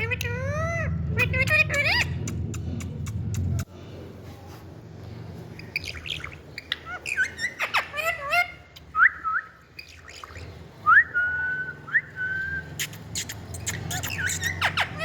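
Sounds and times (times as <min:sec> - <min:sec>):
parakeet chirps and whistles: 0:00.0 - 0:02.4, 0:05.6 - 0:15.0.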